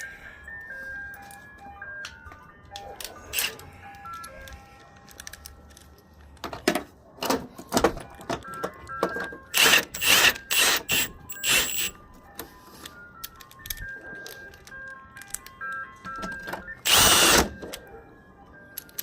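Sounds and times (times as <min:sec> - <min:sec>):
light melodic background music: 0:00.0 - 0:19.0
sharp bursts of power tool: 0:09.6 - 0:11.9, 0:16.9 - 0:17.5.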